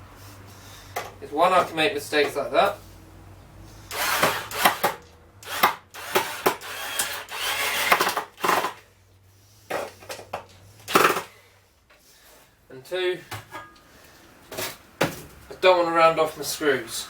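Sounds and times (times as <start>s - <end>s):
power drill driving screw: 3.9s - 8.8s.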